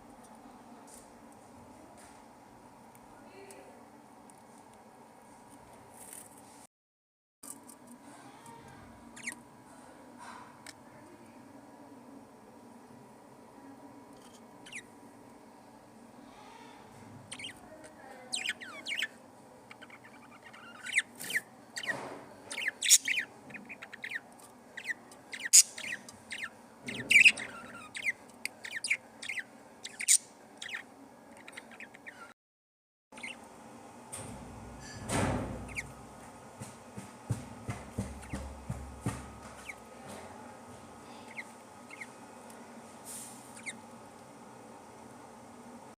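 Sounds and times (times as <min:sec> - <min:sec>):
budgerigars chirping and squawking: 0:09.2 - 0:09.4, 0:14.6 - 0:14.9, 0:17.3 - 0:17.7, 0:18.3 - 0:19.1, 0:19.7 - 0:32.3, 0:33.2 - 0:33.4, 0:35.6 - 0:36.0, 0:38.0 - 0:38.5, 0:39.4 - 0:39.8, 0:41.2 - 0:42.2, 0:43.5 - 0:43.8.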